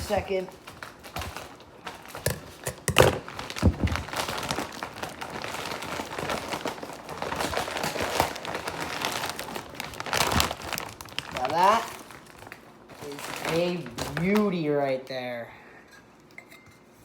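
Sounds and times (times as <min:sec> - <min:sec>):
packaging crinkling and rustling: 0:00.0 - 0:14.6.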